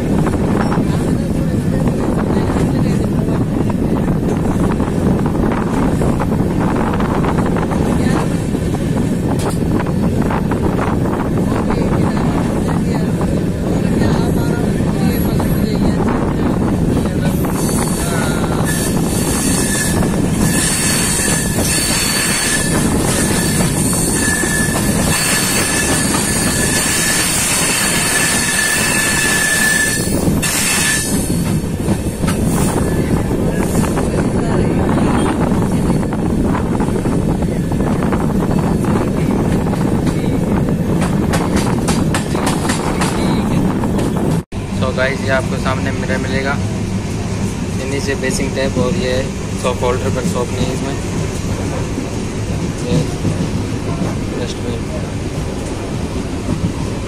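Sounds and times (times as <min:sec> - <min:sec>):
train rumbling at speed: 0:00.0 - 0:57.0
wheels clacking on rails: 0:00.0 - 0:57.0
wind buffeting microphone: 0:00.0 - 0:57.0
high wheel squeal: 0:17.3 - 0:31.4.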